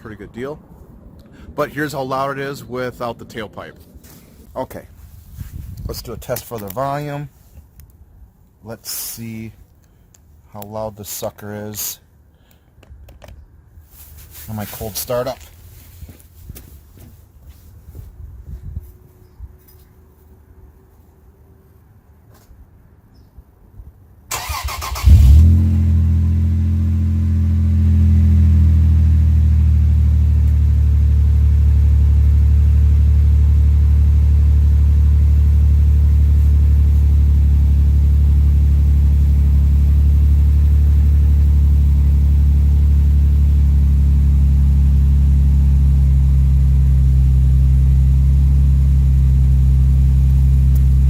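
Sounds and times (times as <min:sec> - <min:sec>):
truck engine idling: 0:29.3 - 0:51.0.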